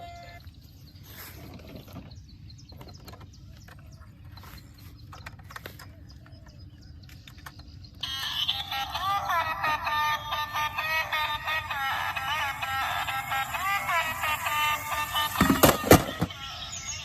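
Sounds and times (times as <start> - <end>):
music with synthesised singing: 8.0 - 17.0.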